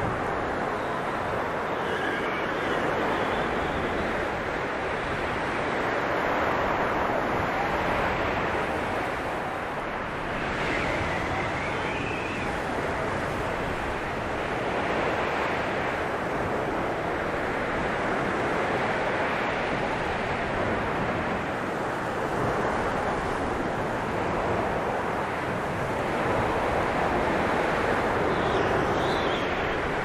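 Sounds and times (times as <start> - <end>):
faint wind whistle: 0.0 - 16.0, 22.4 - 30.0
blizzard wind blowing hard: 0.0 - 30.0.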